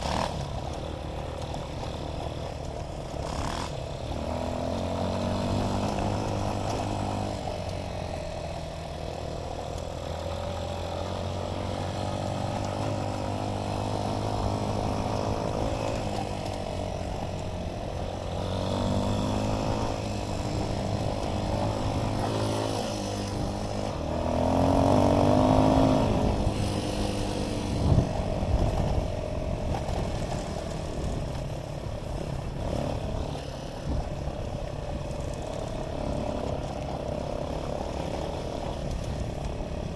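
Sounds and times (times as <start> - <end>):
dirt bike engine revving: 0.0 - 2.3, 3.1 - 8.2, 10.0 - 29.0.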